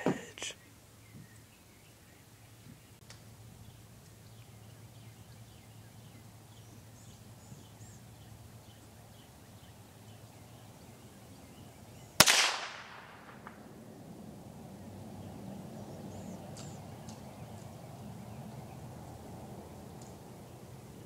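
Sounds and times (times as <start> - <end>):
birds chirping faintly: 0.0 - 12.3, 13.1 - 21.0
rifle shot with echo: 12.2 - 13.7.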